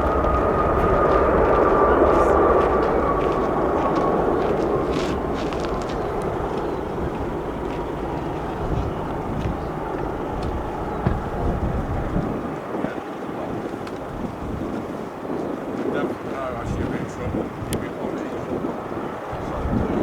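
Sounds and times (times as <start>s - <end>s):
jet airliner engine roar: 0.0s - 20.0s.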